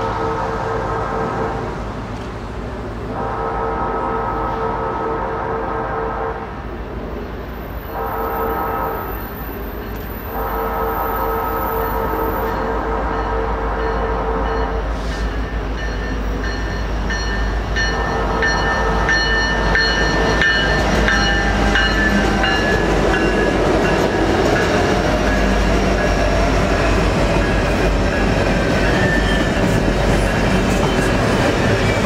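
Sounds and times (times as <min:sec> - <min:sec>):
diesel locomotives passing: 0:00.0 - 0:32.0
train wheels clicking on rails: 0:14.6 - 0:32.0.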